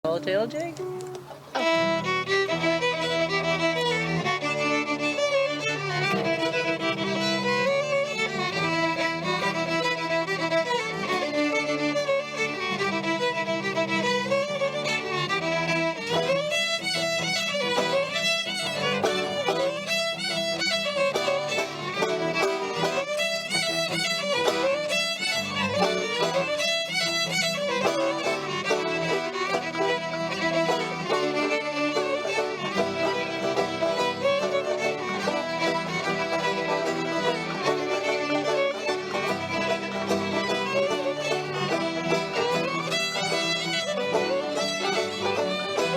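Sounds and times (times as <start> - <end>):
fiddle playing lively tune: 0.0 - 45.9
lower string accompaniment: 0.0 - 45.9.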